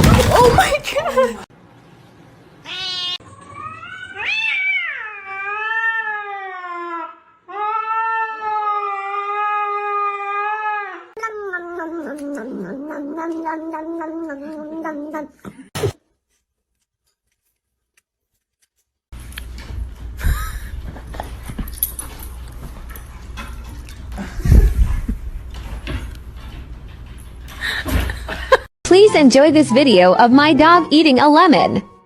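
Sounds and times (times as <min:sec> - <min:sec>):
cat yowling: 0:02.7 - 0:15.4.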